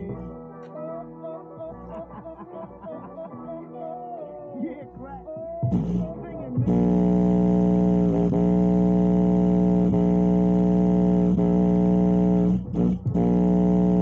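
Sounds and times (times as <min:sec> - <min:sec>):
loud distorted subwoofer tone: 0:04.9 - 0:14.0.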